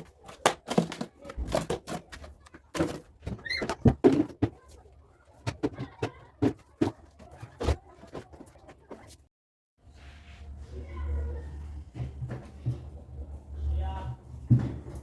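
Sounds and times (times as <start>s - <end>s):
knocks and clatter of containers: 0.0s - 9.1s, 14.3s - 15.0s.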